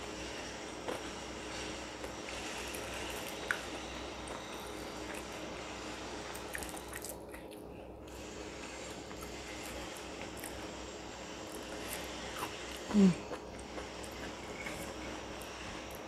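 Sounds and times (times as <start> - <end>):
faint background hum: 0.0 - 16.0
person chewing: 6.3 - 10.8, 11.5 - 16.0.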